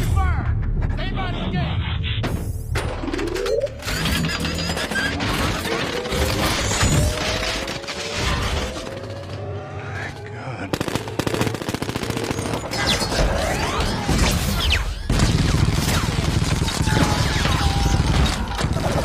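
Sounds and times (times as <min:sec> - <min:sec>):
machine-gun fire: 0:10.7 - 0:13.5, 0:15.1 - 0:19.0.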